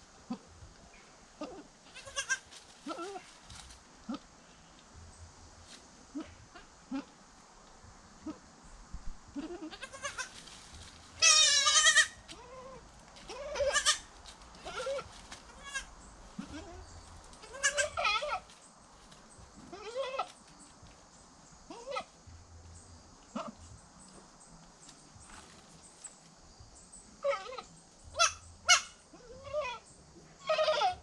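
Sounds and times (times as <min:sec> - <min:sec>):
goats bleating: 0:01.4 - 0:03.2, 0:09.4 - 0:10.3, 0:11.2 - 0:16.8, 0:17.4 - 0:18.5, 0:30.4 - 0:31.0.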